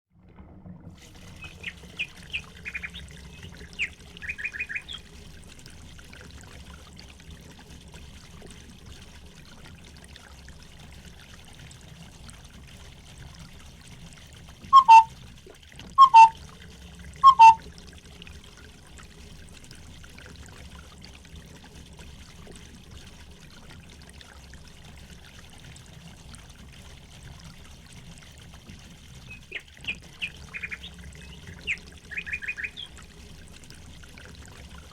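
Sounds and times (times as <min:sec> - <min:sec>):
trickle of running water: 0:00.2 - 0:34.9
small birds chirping: 0:01.4 - 0:05.0, 0:14.8 - 0:15.1, 0:16.0 - 0:16.3, 0:17.2 - 0:17.6, 0:29.3 - 0:32.9
loud bird calls: 0:03.8 - 0:05.0, 0:14.8 - 0:15.1, 0:16.0 - 0:16.3, 0:17.2 - 0:17.6, 0:31.7 - 0:32.9.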